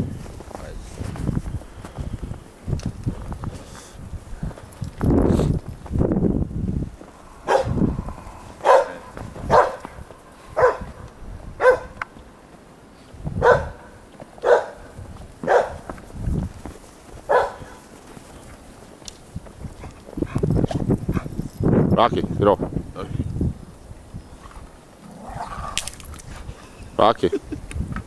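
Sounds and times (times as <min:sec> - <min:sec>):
low rumbling noise: 0:05.2 - 0:11.6
dog barking: 0:07.4 - 0:07.8, 0:08.6 - 0:10.0, 0:10.6 - 0:11.0, 0:11.6 - 0:12.0, 0:13.4 - 0:15.9, 0:17.3 - 0:17.8.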